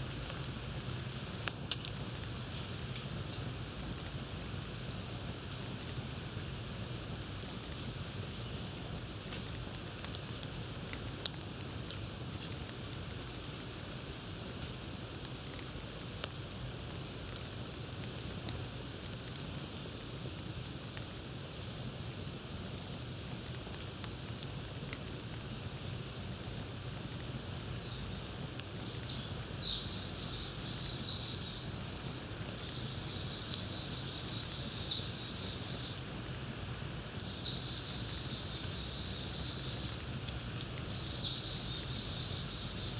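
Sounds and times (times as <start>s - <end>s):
campfire crackling and popping: 0.0s - 42.9s
songbird whistles and trill: 29.0s - 31.6s, 41.0s - 42.6s.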